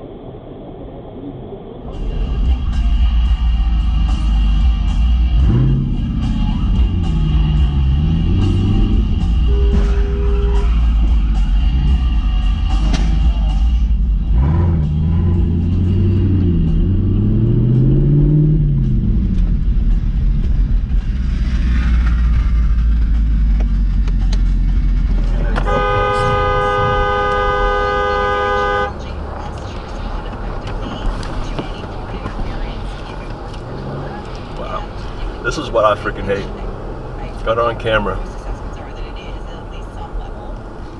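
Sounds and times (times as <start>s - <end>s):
vehicle engine and road rumble: 0.0s - 40.9s
car horn blast: 8.7s - 11.2s, 25.4s - 29.0s.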